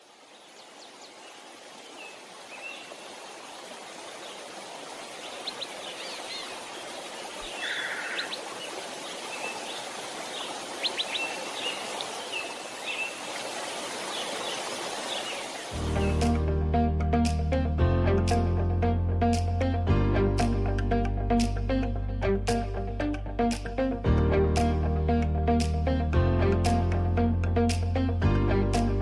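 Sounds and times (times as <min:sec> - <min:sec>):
flowing water: 0:00.0 - 0:16.4
birds chirping: 0:05.1 - 0:16.4
buzzy bird call: 0:07.4 - 0:08.4.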